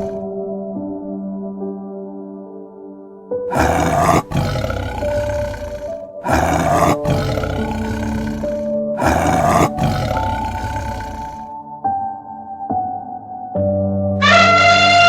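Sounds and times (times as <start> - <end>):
loud animal roars: 0.0 - 0.3, 3.5 - 11.5
background music with held notes: 0.2 - 3.5, 11.5 - 15.0.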